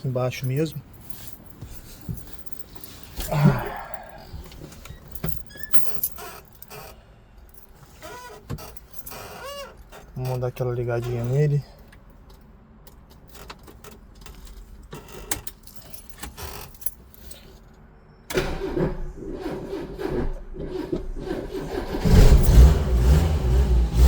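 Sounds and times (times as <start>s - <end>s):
keys jingling: 0.0s - 6.9s, 7.5s - 14.7s, 15.3s - 17.6s
car engine cranking and starting: 18.3s - 24.0s
car engine running with low rumble: 20.2s - 24.0s.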